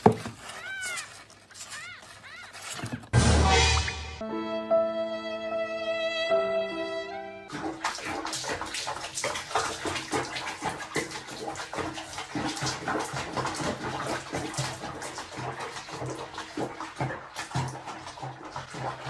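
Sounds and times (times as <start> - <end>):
water splashing and running: 7.5 - 19.0.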